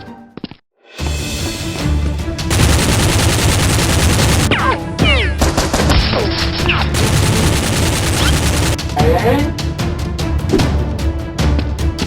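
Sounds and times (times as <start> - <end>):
background music: 0.9 - 12.0
automatic gunfire: 2.5 - 4.6, 7.0 - 8.8.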